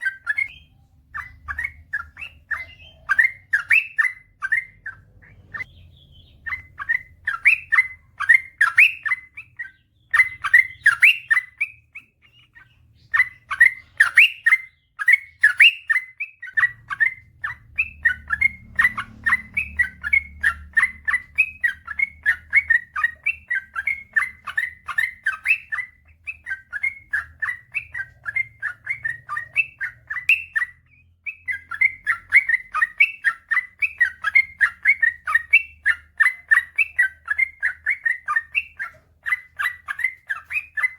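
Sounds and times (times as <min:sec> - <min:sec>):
bulbul singing rapid chirps: 0:00.0 - 0:40.9.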